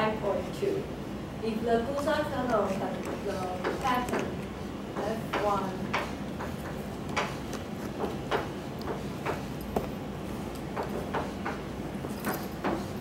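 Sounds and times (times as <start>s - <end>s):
steady low hum: 0.0s - 13.0s
light taps and clicks: 1.9s - 9.9s.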